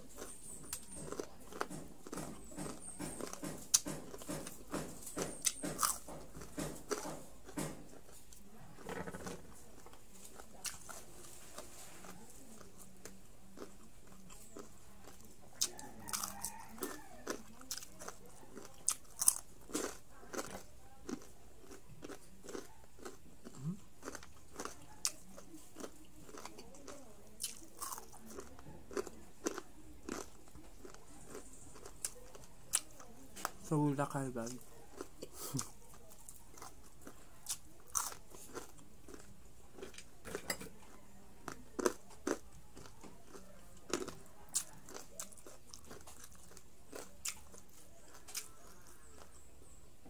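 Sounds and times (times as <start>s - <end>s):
crunching and chewing crispy food: 0.0s - 50.0s.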